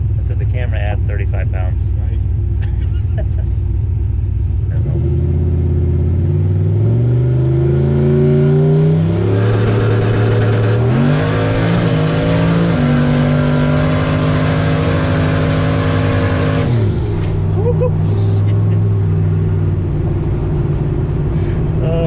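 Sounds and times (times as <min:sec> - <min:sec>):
engine accelerating hard: 0:04.6 - 0:22.0.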